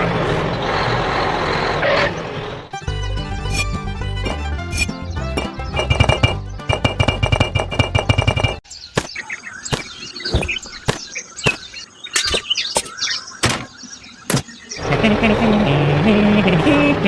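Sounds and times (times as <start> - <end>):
background music: 2.7 - 8.4.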